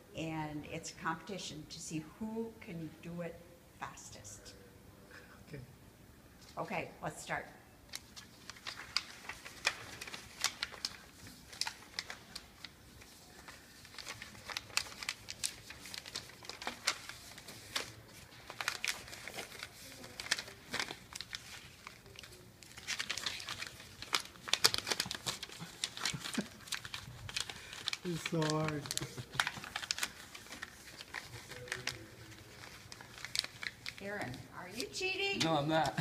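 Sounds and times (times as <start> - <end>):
paper crinkling and crackling: 7.9 - 36.0.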